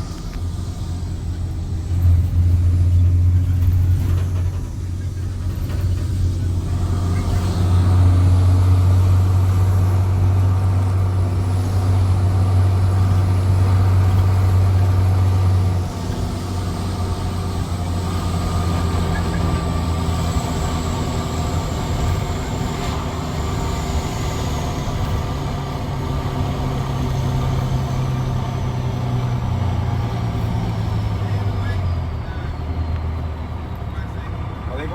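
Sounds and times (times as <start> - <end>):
diesel engine exhaust drone: 0.0 - 34.9.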